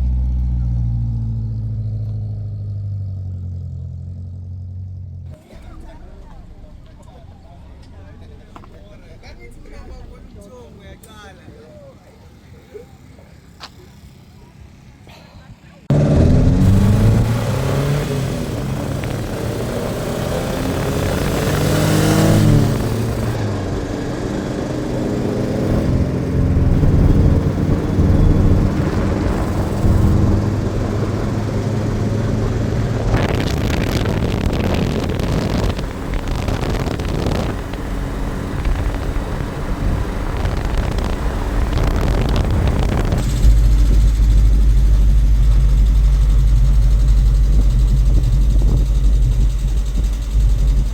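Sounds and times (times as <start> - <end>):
vehicle engine revving: 0.0 - 10.7, 15.9 - 50.9
heavy low rumble: 5.2 - 10.6, 15.9 - 24.0, 24.8 - 50.9.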